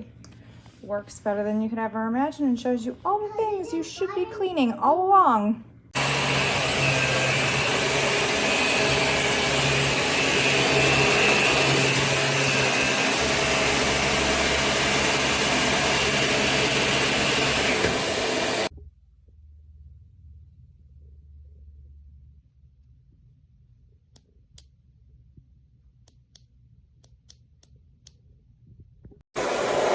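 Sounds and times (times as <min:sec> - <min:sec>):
vacuum cleaner running: 0:06.0 - 0:18.7, 0:29.3 - 0:29.9.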